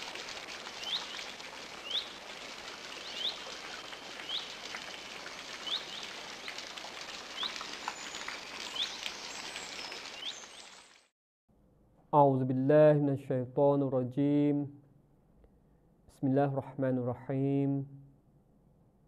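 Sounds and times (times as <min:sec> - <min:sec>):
bird chirping: 0:05.6 - 0:06.1, 0:07.4 - 0:10.8.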